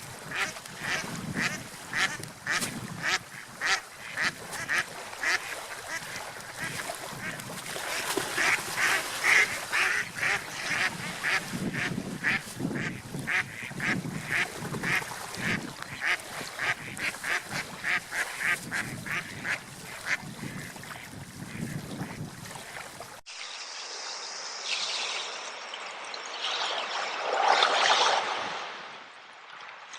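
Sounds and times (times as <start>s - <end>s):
ducks quacking: 0.3s - 22.2s.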